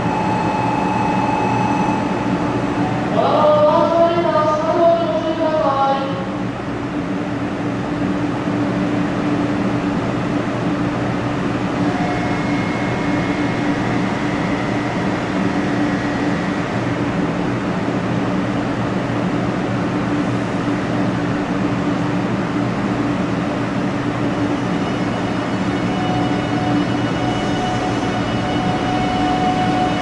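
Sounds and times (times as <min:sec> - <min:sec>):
faint high tone: 0:00.0 - 0:03.9
train humming: 0:00.0 - 0:30.0.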